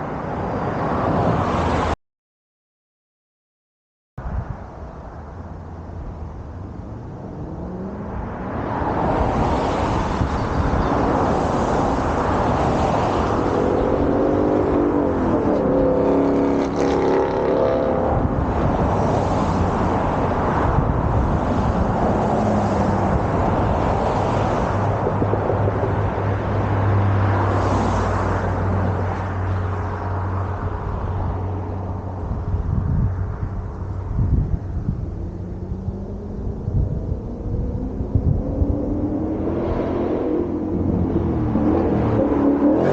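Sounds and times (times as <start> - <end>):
car engine accelerating: 6.9 - 32.2.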